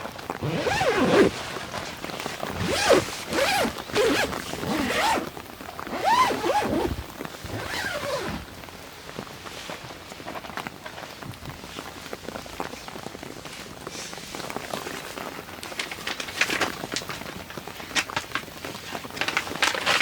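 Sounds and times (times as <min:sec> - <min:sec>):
light rain: 0:00.0 - 0:20.0
tent zipper being pulled: 0:00.3 - 0:08.5.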